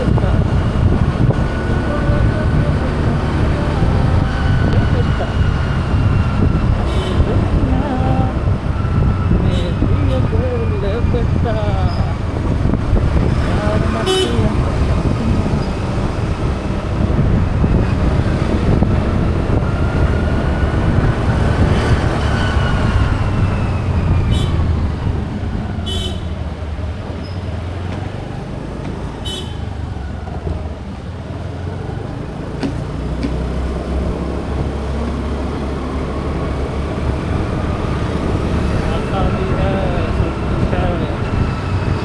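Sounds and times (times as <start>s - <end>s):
traffic rumble: 0.0s - 42.0s
vehicle horn toots: 6.8s - 7.6s, 14.0s - 14.6s, 24.3s - 24.6s, 25.8s - 26.4s, 29.2s - 29.8s.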